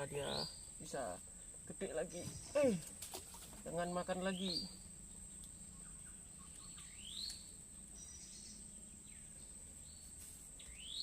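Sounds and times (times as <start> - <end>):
faint bird chirps: 0.0 - 11.0
insect drone: 0.0 - 11.0.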